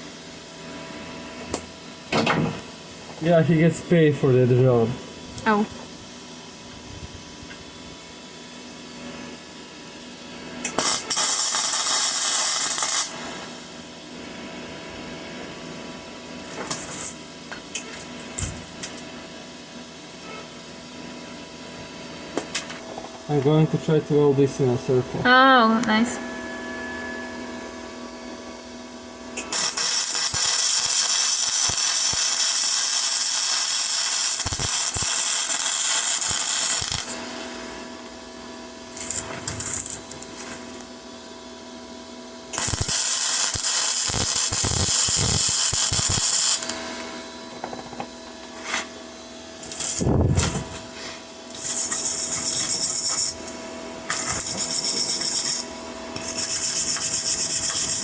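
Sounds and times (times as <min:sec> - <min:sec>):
welder arc crackling and hissing: 0:10.6 - 0:14.0, 0:16.4 - 0:19.2, 0:22.4 - 0:25.0, 0:29.3 - 0:38.2, 0:38.8 - 0:41.1, 0:42.4 - 0:58.0
steady low hum: 0:20.2 - 0:31.2.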